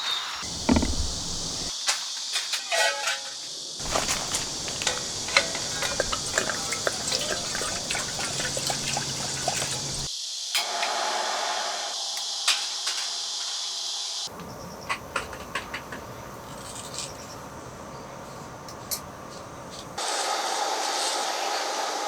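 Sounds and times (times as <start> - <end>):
rain pattering and dripping: 3.8 - 10.1.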